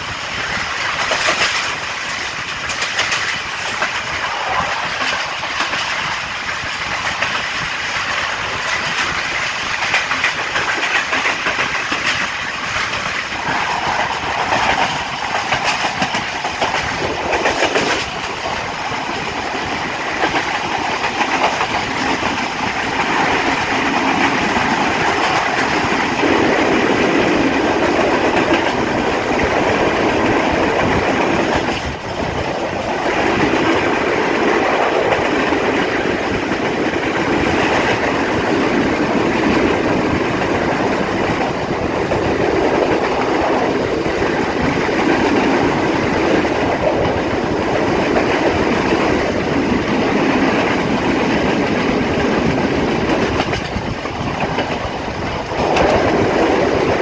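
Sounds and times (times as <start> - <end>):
train wheel and rail rush: 0.0 - 57.0
wheels clacking over rail joints: 0.0 - 57.0.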